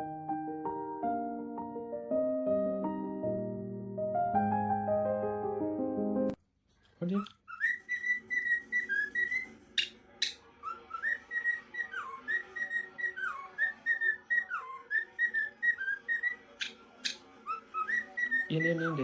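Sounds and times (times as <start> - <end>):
parrot whistling: 7.2 - 19.0.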